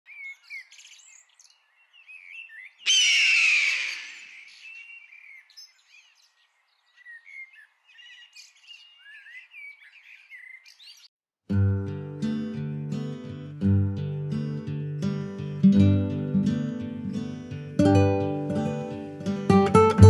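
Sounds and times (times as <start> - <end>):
loud harsh bird cry: 0.1 - 11.1
small birds chirping: 0.1 - 11.1.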